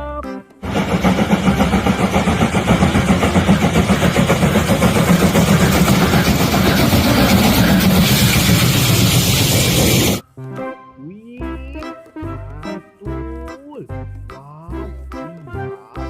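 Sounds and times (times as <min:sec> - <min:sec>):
vehicle engine pulsing rumble: 0:00.7 - 0:10.2.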